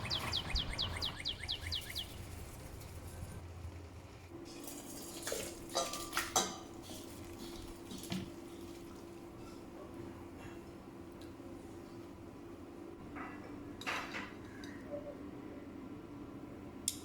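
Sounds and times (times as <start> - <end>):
dishes and cutlery clinking: 4.6 - 7.1.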